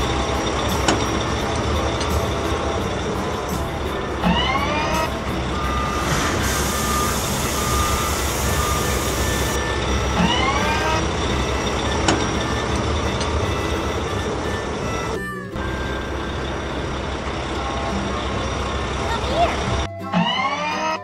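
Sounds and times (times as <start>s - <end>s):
low engine rumble: 0.0s - 20.0s
rising hydraulic whine: 0.0s - 21.0s
reversing alarm beeps: 4.2s - 18.6s, 19.9s - 21.0s
sand pouring hiss: 5.9s - 9.5s.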